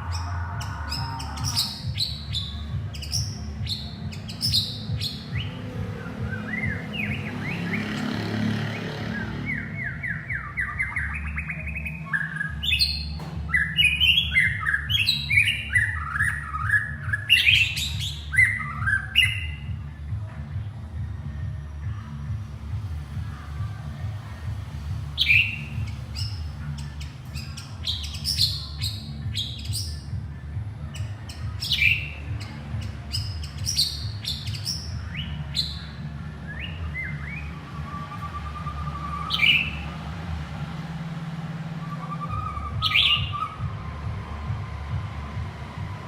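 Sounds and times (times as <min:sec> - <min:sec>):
bird chirping and whistling: 0:00.0 - 0:08.1, 0:08.8 - 0:19.8, 0:25.2 - 0:30.1, 0:30.9 - 0:40.9, 0:41.5 - 0:46.0
steady low hum: 0:11.6 - 0:46.0.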